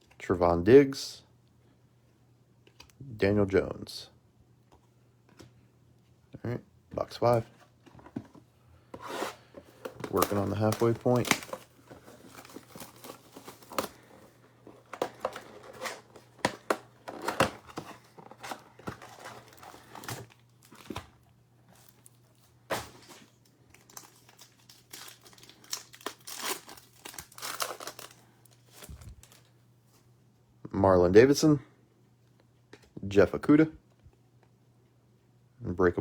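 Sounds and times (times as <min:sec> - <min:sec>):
card pack wrappers crinkling: 0:09.6 - 0:29.5.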